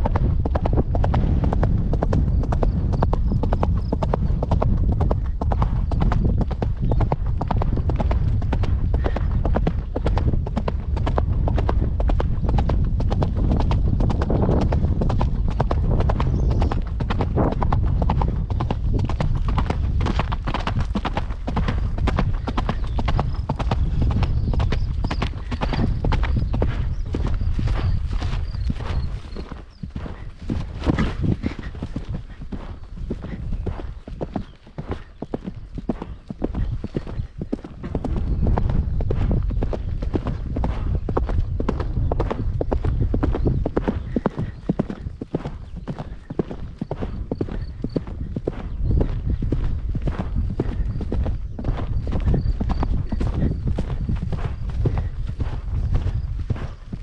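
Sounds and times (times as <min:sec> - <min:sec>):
steady low rumble: 0:00.0 - 0:03.9, 0:04.5 - 0:45.1
horse hooves clip-clopping: 0:00.0 - 0:57.0.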